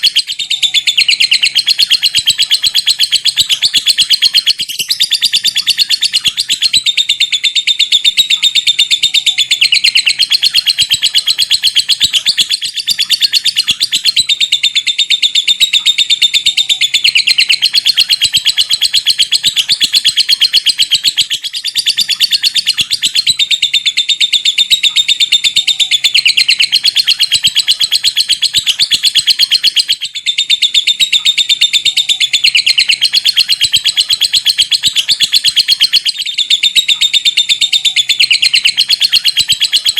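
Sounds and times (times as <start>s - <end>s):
lovebird chattering trill: 0.0s - 39.9s.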